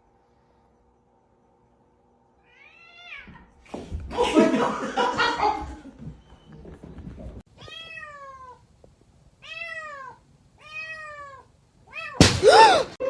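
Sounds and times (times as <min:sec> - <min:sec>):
cat meowing: 0:02.4 - 0:03.4, 0:07.6 - 0:08.6, 0:09.4 - 0:12.2.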